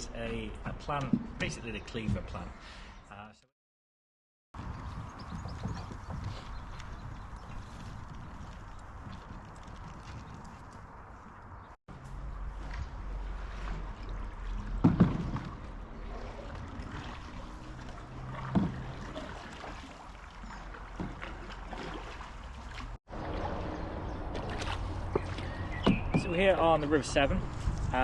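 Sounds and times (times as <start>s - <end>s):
water sounds: 4.8s - 27.3s
paddle strokes: 12.0s - 26.5s
loud knocks: 14.8s - 15.5s.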